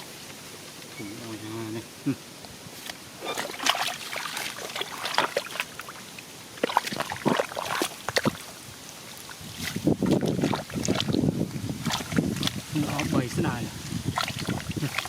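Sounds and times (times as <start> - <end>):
shallow water splashing: 3.1 - 15.0.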